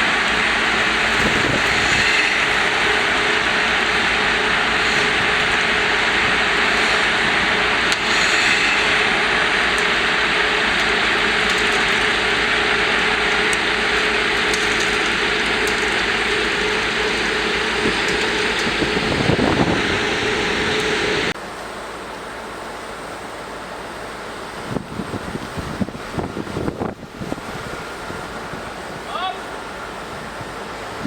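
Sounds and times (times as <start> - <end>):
hydraulic noise: 0.0 - 21.4
constant hum: 0.0 - 31.0
diesel engine: 0.0 - 31.0.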